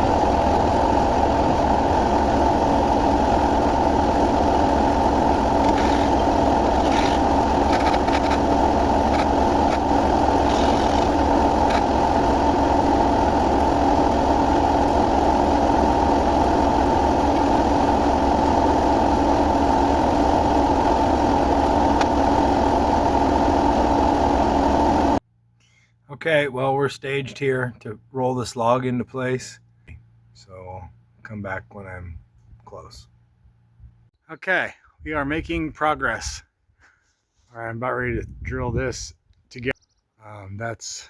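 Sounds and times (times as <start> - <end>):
engine idling: 0.0 - 25.2.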